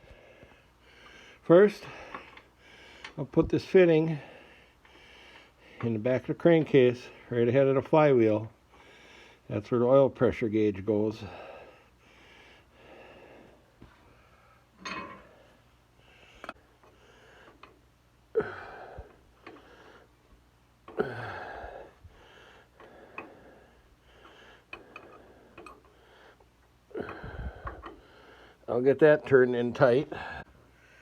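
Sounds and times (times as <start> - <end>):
man breathing and sniffing: 0.0 - 3.2, 4.1 - 5.9, 8.6 - 9.5, 11.2 - 28.7, 30.1 - 31.0
light metallic clicks and taps: 24.7 - 26.0.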